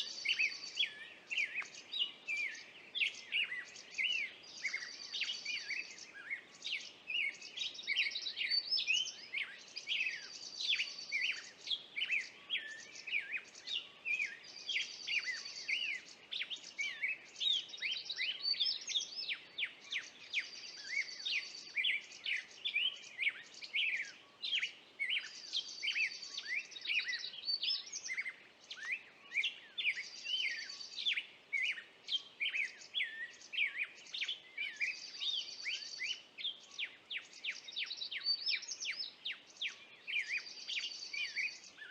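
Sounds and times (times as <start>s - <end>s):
birds chirping: 0.0s - 41.9s.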